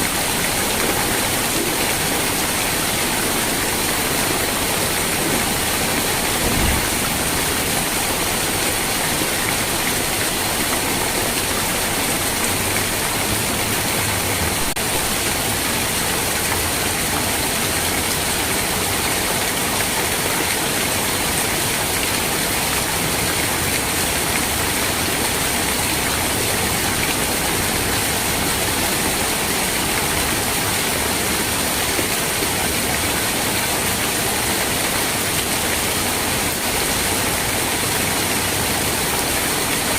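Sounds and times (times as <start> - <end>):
heavy rainfall: 0.0 - 39.9
low thump: 6.4 - 7.2.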